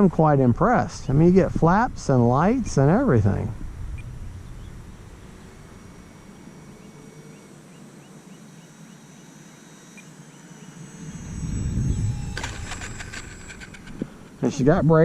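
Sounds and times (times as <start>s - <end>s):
faint high whine: 0.0s - 15.0s
low rumble: 1.0s - 6.1s, 10.9s - 15.0s
small bird chirping: 3.9s - 14.2s.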